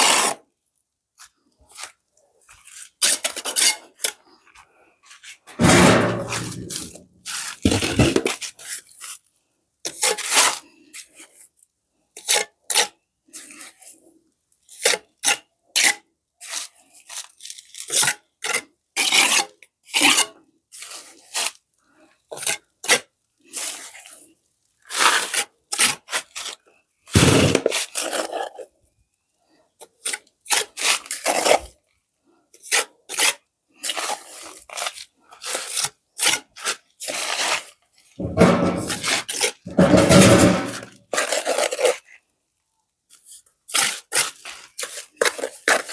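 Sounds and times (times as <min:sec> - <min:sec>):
trowel scraping wet mortar: 0:05.6 - 0:08.7, 0:27.2 - 0:28.6, 0:30.0 - 0:31.7, 0:32.6 - 0:42.0, 0:43.2 - 0:45.9.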